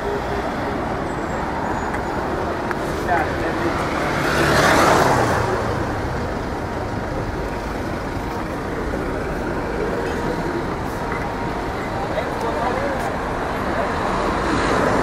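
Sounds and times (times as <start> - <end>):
steady traffic noise: 0.0 - 15.0
vehicle passing close by: 2.9 - 6.4.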